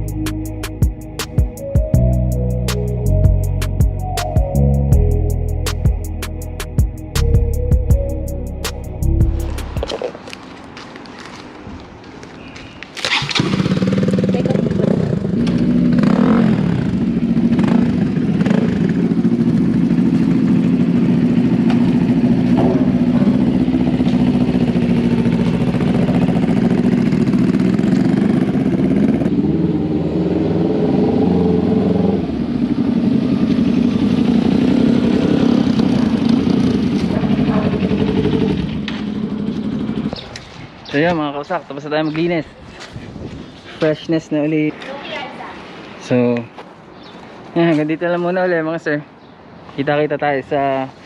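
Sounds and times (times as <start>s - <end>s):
motorcycle engine running: 13.1s - 40.5s.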